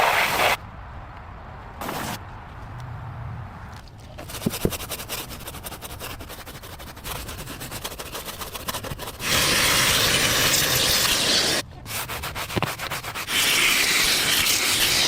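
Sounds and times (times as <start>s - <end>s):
rubbing strokes on a surface: 4.2s - 15.0s.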